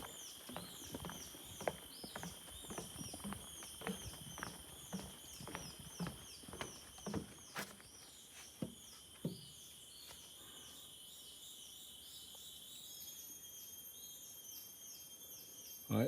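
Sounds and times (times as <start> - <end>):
footsteps on trail: 0.0 - 9.5
insects buzzing and chirping: 0.0 - 16.0.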